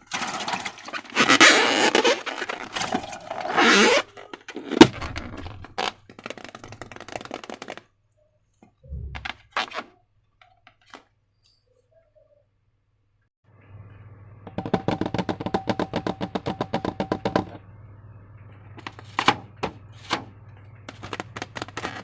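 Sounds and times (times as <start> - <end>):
scraping and rustling of slime: 0.0 - 7.9, 20.9 - 22.0.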